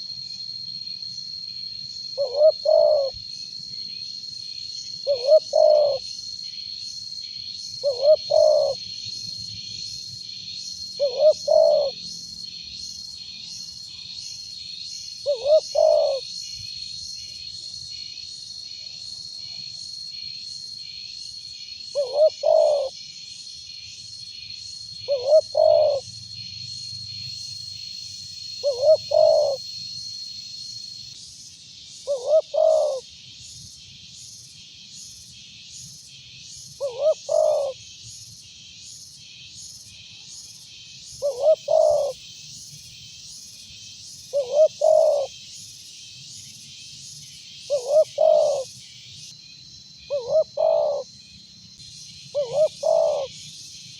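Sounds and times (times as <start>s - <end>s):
dove cooing: 2.2s - 3.2s, 5.0s - 6.0s, 7.8s - 8.8s, 11.0s - 12.0s, 15.2s - 16.3s, 22.0s - 22.9s, 25.1s - 26.1s, 28.6s - 29.6s, 32.1s - 33.0s, 36.8s - 37.8s, 41.2s - 42.2s, 44.3s - 45.3s, 47.7s - 48.7s, 50.1s - 51.1s, 52.3s - 53.4s.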